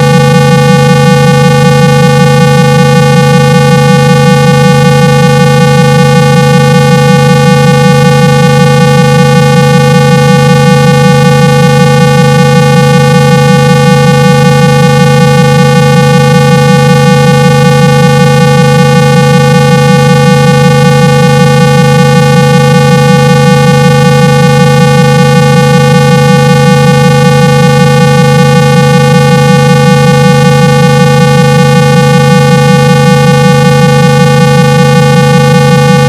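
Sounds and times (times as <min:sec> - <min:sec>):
low buzzing electronic test tone: 0:00.0 - 0:36.0.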